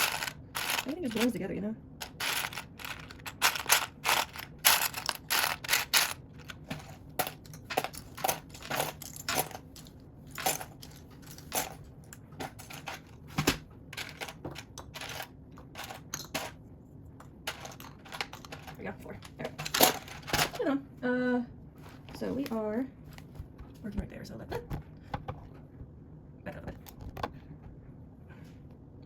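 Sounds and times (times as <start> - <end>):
plastic bricks clicking and rattling: 0.0 - 1.4, 2.0 - 11.8, 14.0 - 16.6, 17.5 - 20.5.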